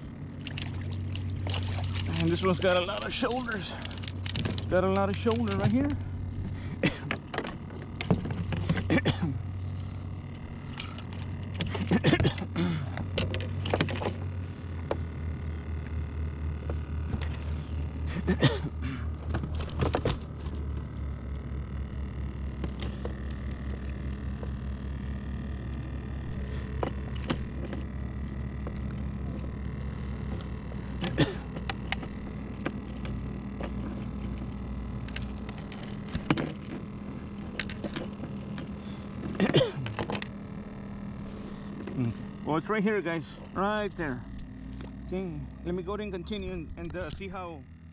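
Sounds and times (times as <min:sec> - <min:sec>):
small motor humming with pulse: 0:00.0 - 0:47.9.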